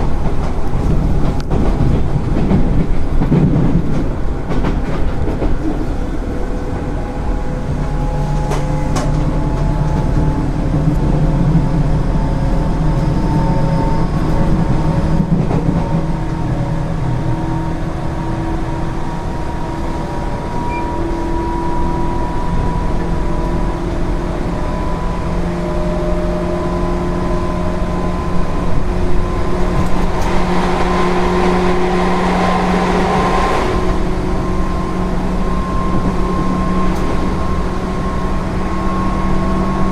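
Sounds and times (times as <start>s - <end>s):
electric train motor whine: 5.8s - 39.9s
rushing noise: 23.8s - 39.9s.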